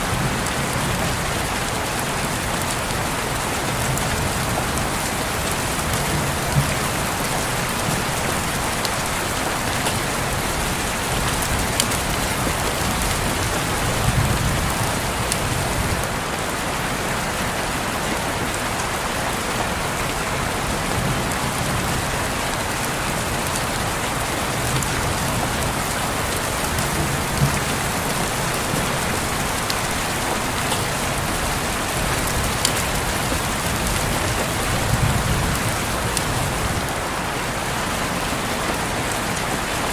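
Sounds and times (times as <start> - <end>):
rain on a window: 0.0 - 39.9
raindrop taps: 3.6 - 16.1, 24.6 - 37.0.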